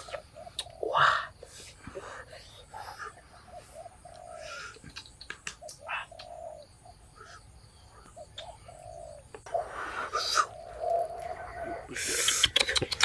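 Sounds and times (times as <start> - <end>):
low bird calls: 0.0 - 13.0
sharp clicks: 12.2 - 13.0.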